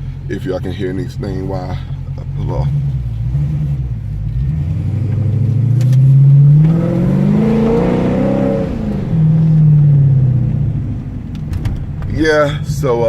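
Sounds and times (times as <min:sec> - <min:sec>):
car exhaust accelerating: 0:00.0 - 0:13.0.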